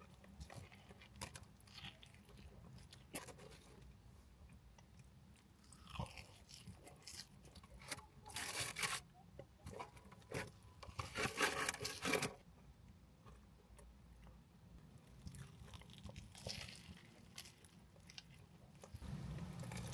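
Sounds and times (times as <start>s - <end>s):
crunchy bites and chewing: 0.0s - 3.7s, 4.9s - 9.0s, 15.0s - 19.9s.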